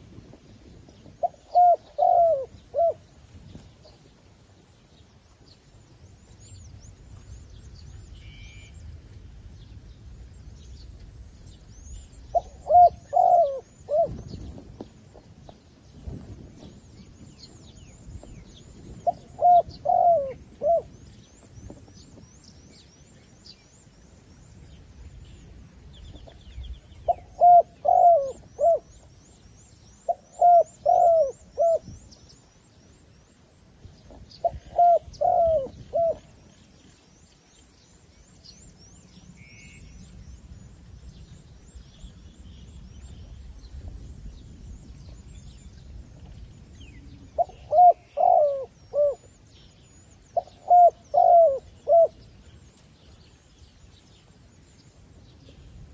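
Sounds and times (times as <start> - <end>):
dove cooing: 1.1 - 3.2, 12.3 - 15.3, 19.0 - 21.0, 27.0 - 29.1, 30.0 - 31.9, 34.1 - 36.3, 46.9 - 49.4, 50.4 - 52.2.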